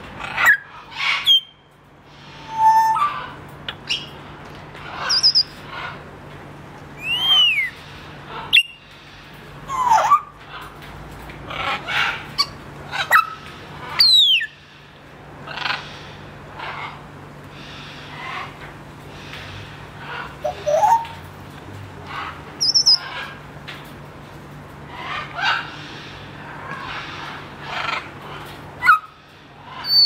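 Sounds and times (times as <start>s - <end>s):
parrot squawking and chattering: 4.8s - 6.0s, 7.0s - 8.8s, 9.7s - 10.8s, 11.5s - 14.6s, 20.0s - 21.2s, 22.0s - 23.4s, 26.4s - 30.0s.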